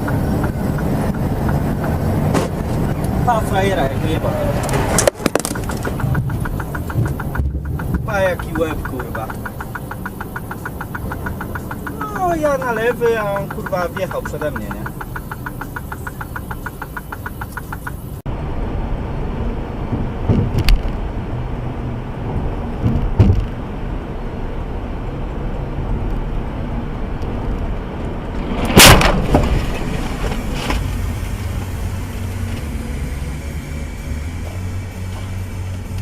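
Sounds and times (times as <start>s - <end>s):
car driving rumble: 0.0s - 36.0s
knocks: 5.0s - 18.0s
loud collision bang: 28.6s - 30.8s.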